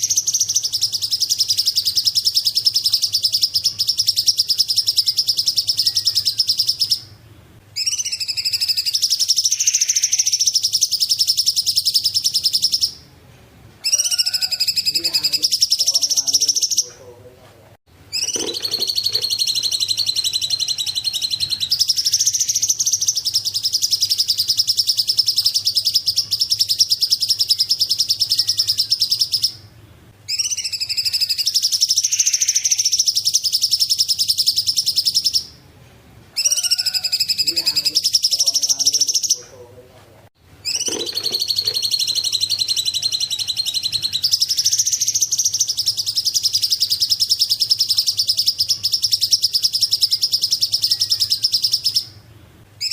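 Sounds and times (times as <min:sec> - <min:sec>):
bird chattering trill: 0:00.0 - 0:07.1, 0:07.8 - 0:13.0, 0:13.8 - 0:17.0, 0:18.1 - 0:29.7, 0:30.3 - 0:35.6, 0:36.4 - 0:39.5, 0:40.6 - 0:52.2.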